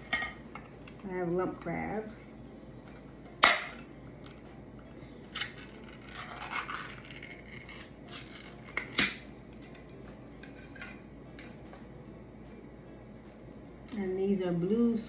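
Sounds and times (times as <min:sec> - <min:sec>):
scraping and crinkling: 0:05.4 - 0:09.0.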